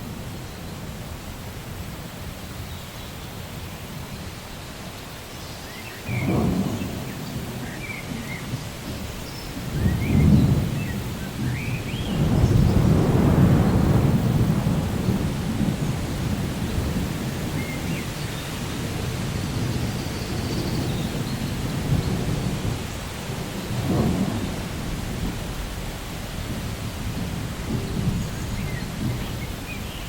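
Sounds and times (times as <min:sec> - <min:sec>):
steady rain: 0:00.0 - 0:30.0
low rolling thunder: 0:06.1 - 0:29.9.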